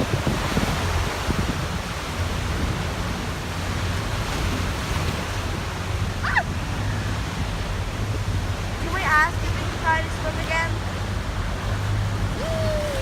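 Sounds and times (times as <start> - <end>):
water rushing past boat hull: 0.0 - 13.0
wind buffeting microphone: 0.0 - 13.0
low engine drone: 5.4 - 13.0.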